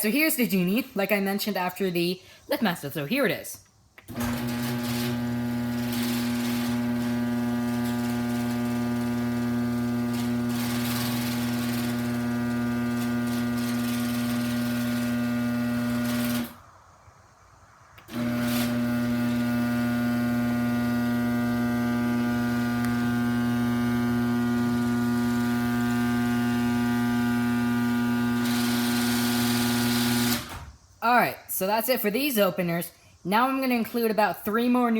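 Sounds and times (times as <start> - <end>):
garage door opener motor humming: 4.0 - 16.7, 18.0 - 30.8.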